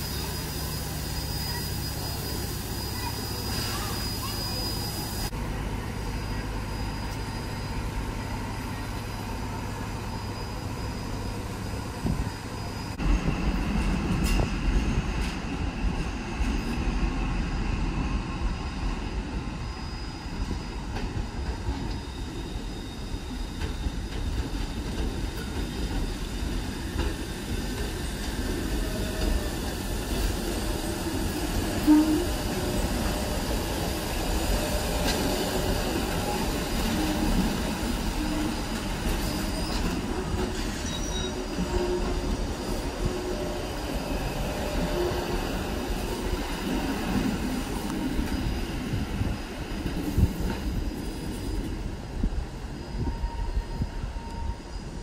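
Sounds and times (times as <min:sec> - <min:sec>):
train rumbling on rails: 0:00.0 - 0:55.0.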